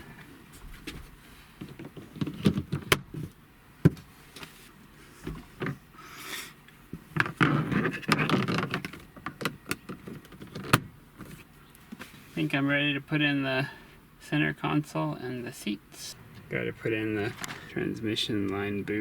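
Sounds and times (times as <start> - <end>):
plastic rattling and rubbing: 1.6 - 3.4, 7.0 - 11.5.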